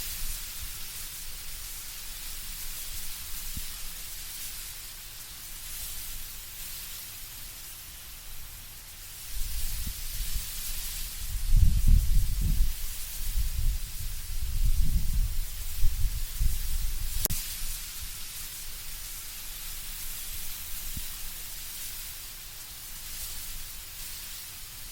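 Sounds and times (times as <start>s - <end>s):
leaves rustling in wind: 0.0s - 24.9s
low gusty wind rumble: 11.2s - 17.3s.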